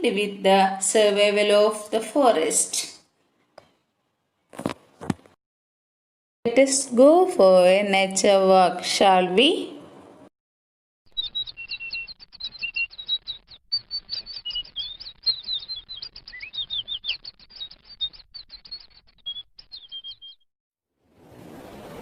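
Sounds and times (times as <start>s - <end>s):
birds chirping: 11.1s - 20.5s.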